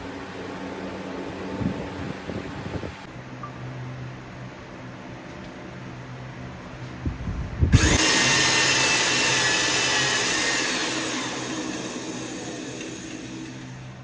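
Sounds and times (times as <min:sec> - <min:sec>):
power tool running: 0:07.7 - 0:14.0.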